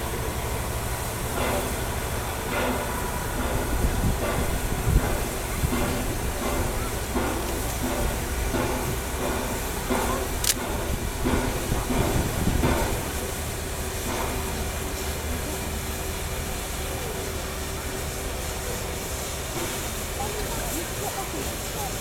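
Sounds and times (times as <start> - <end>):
steam locomotive hissing steam: 0.0 - 22.0
sharp click: 10.4 - 10.7.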